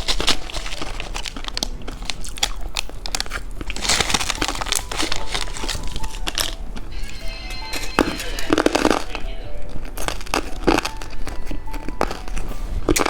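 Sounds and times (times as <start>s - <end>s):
candy crunching: 0.0s - 13.0s
crinkling: 0.0s - 13.0s.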